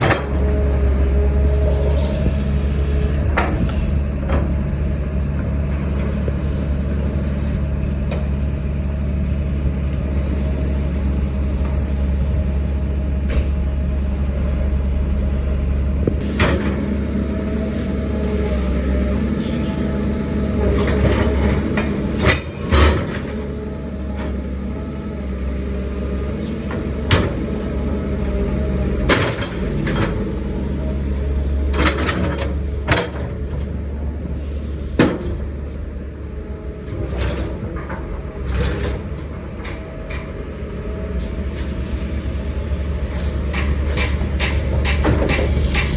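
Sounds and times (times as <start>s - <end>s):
excavator diesel engine running: 0.0s - 45.9s
metallic clanks and knocks: 31.7s - 33.7s, 43.1s - 45.9s.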